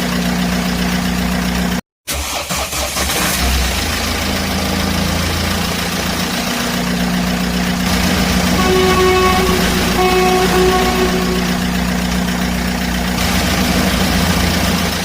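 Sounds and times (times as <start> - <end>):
higher pitched tone: 8.6 - 12.4.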